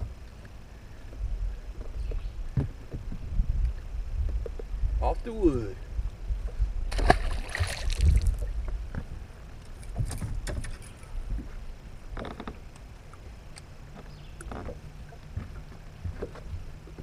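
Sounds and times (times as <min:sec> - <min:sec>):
water splashing against boat: 0:06.3 - 0:17.0.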